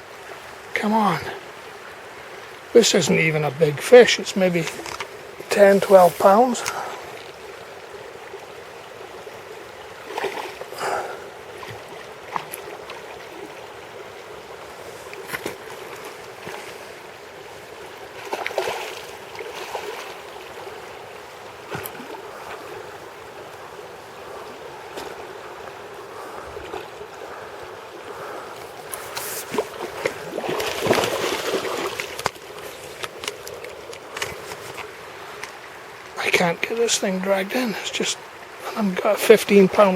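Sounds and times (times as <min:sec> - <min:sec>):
river water rushing: 0:00.0 - 0:39.9
fish splashing at the surface: 0:18.2 - 0:20.2, 0:28.9 - 0:32.3.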